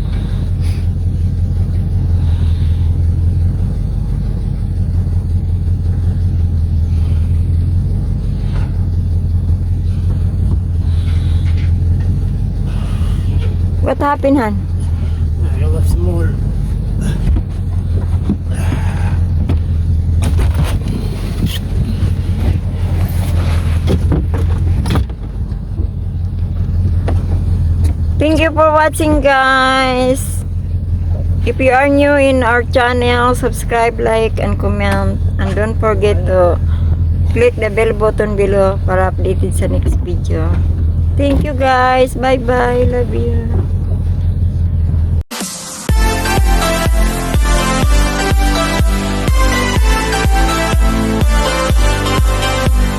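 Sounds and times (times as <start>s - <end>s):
engine running: 0.0s - 52.9s.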